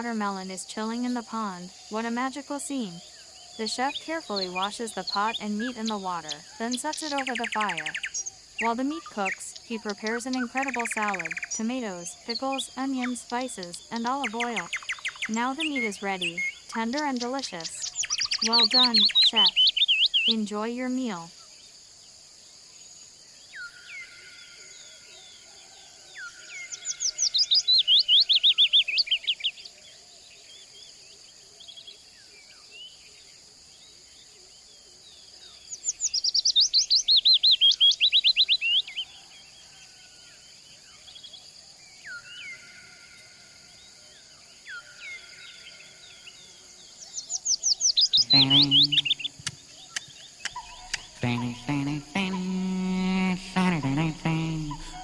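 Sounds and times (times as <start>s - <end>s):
songbird singing: 0.0s - 55.0s
soft whistled bird notes: 47.1s - 52.1s.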